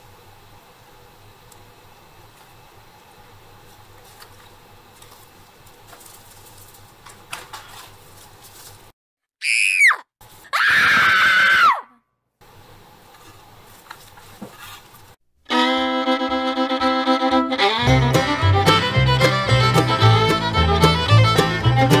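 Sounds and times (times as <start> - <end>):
high-pitched scream: 9.4 - 12.0
fiddle music: 15.5 - 22.0.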